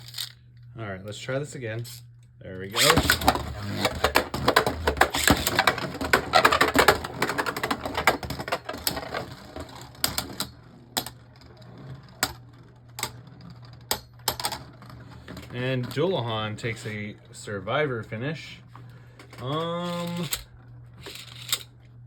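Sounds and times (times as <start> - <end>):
spinning tops clattering: 2.8 - 11.2, 19.4 - 20.4, 21.0 - 21.7.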